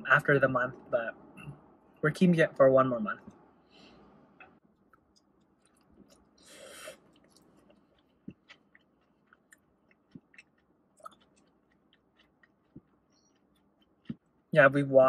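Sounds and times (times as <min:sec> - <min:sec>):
faint chewing: 0:04.5 - 0:14.5
short hiss: 0:06.4 - 0:07.0.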